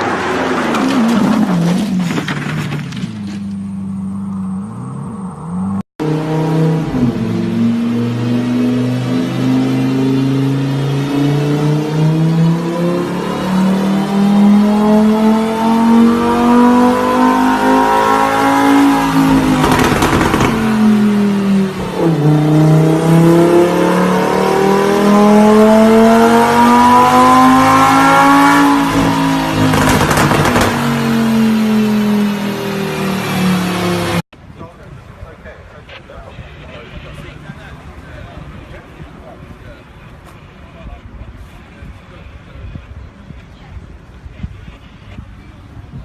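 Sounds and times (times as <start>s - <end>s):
car engine accelerating hard: 4.1s - 34.2s.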